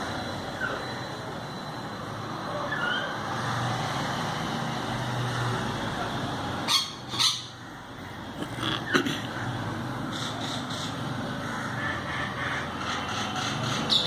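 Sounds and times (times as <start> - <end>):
myna chirping and squawking: 10.0 - 14.0.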